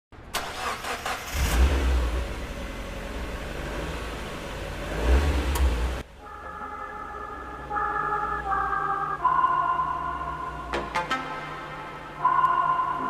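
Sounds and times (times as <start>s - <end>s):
car engine revving: 0.4s - 6.2s
music with long held tones: 6.1s - 13.0s.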